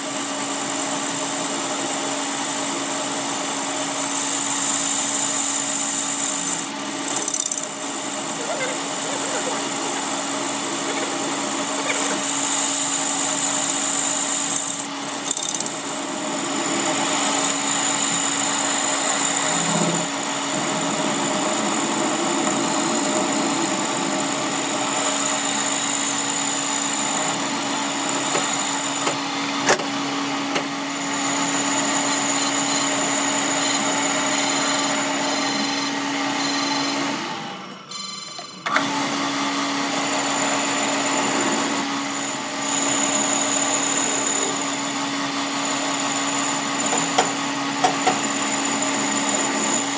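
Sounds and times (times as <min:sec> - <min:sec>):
workshop machine motor humming: 0:03.6 - 0:49.9.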